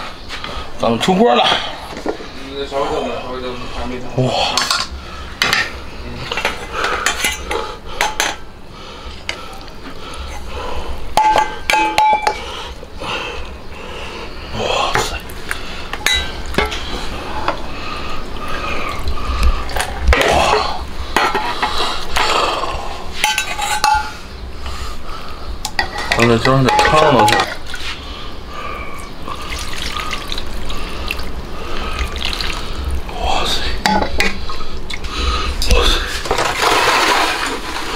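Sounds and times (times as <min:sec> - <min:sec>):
metal utensils clinking and scraping: 0:04.5 - 0:05.7, 0:06.3 - 0:08.4, 0:16.0 - 0:16.9, 0:19.8 - 0:22.3, 0:23.2 - 0:24.2, 0:25.7 - 0:27.7.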